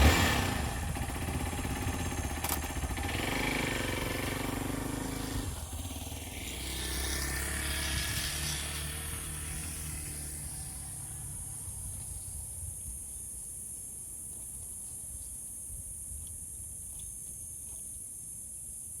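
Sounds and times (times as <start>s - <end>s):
crickets chirping: 8.3s - 19.0s.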